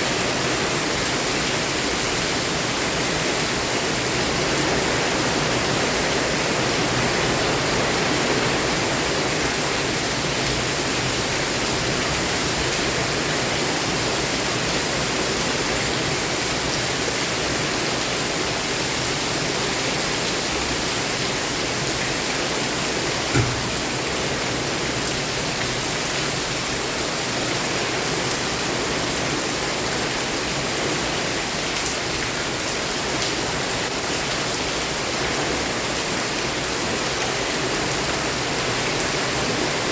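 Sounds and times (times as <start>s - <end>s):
heavy rain falling: 0.0s - 39.9s
brief thump: 23.3s - 24.0s.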